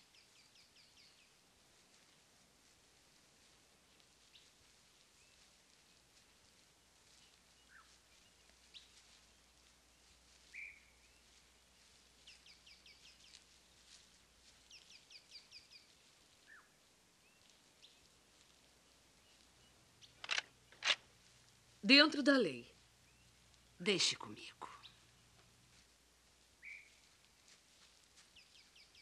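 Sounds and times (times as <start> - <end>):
faint birdsong: 0.0 - 29.0
sharp click: 20.2 - 21.0.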